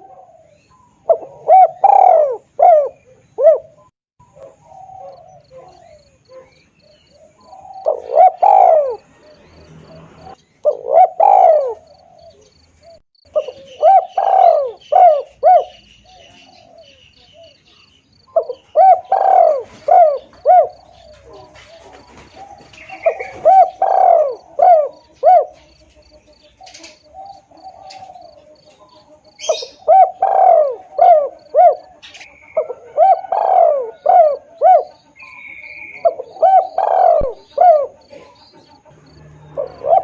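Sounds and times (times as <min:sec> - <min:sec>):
dove cooing: 0:00.0 - 0:40.0.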